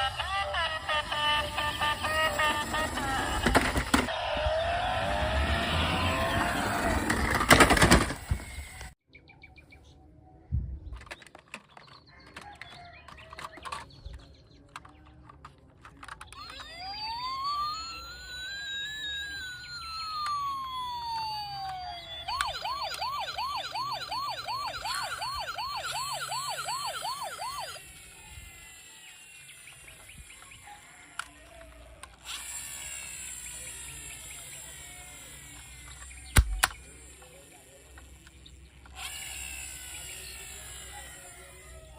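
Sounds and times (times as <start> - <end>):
toy siren wailing and yelping: 0.0 - 9.0, 16.0 - 41.9
clicks: 35.9 - 36.9.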